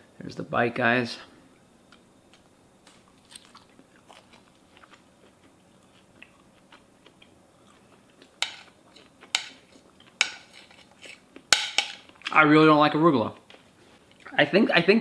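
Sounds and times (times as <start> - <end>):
person chewing: 2.3 - 11.5.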